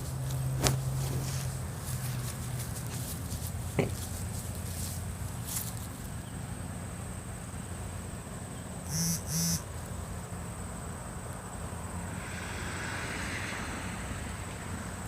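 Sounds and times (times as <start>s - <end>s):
short pitched beeps: 8.9s - 9.6s
thin high whine: 8.9s - 9.7s.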